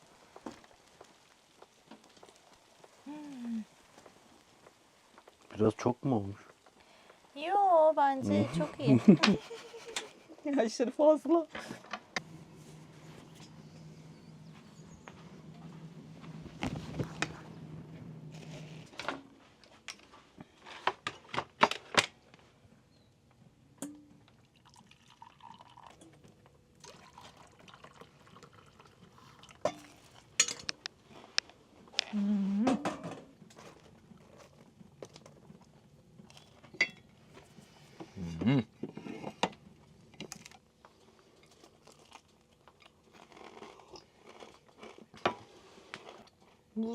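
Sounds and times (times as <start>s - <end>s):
low steady hum: 11.4s - 21.0s
liquid being poured: 24.3s - 30.4s
dishes and utensils clinking: 29.6s - 30.8s, 36.7s - 37.1s.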